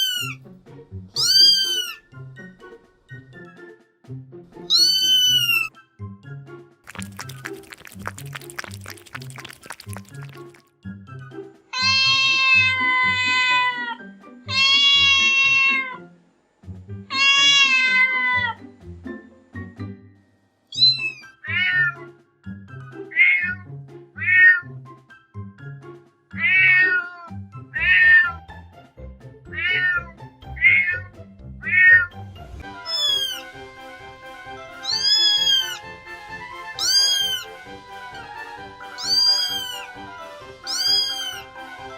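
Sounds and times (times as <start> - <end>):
cats meowing: 0.0 - 0.4, 1.2 - 2.0, 4.7 - 5.7, 11.8 - 16.0, 17.1 - 18.6, 20.8 - 22.0, 23.2 - 23.6, 24.2 - 24.6, 26.4 - 27.2, 27.8 - 28.3, 29.5 - 30.0, 32.9 - 33.4, 34.8 - 35.8, 36.8 - 37.5, 38.9 - 39.9, 40.6 - 41.4
background music: 0.0 - 41.9.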